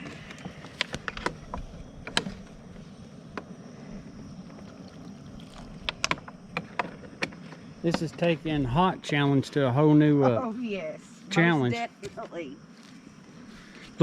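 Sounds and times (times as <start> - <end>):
low rushing background noise: 0.0 - 14.0.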